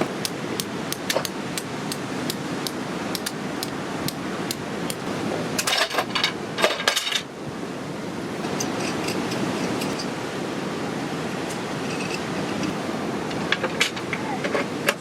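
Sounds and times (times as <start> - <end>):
strong wind: 0.0 - 15.0.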